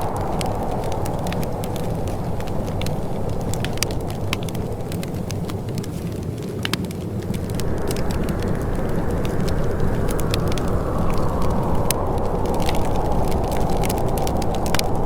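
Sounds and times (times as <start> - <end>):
low rushing noise: 0.0 - 4.3, 7.2 - 15.0
wood fire crackling and popping: 0.0 - 15.0.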